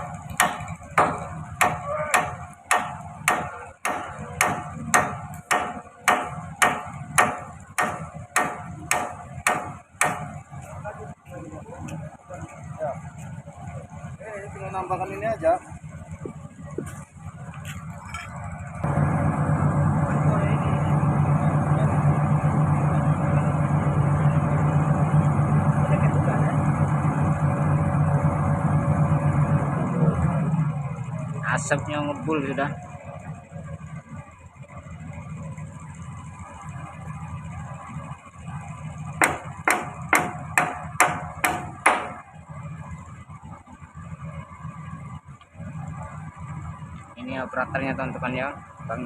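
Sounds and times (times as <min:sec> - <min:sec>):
engine humming steadily: 0:00.0 - 0:49.0
hammer blows on steel: 0:00.4 - 0:10.4, 0:39.2 - 0:42.2.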